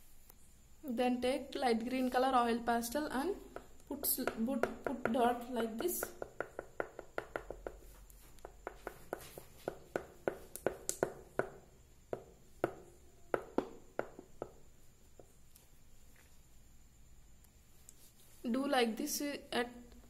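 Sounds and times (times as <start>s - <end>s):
oil pastel tapping on paper: 3.5s - 15.4s.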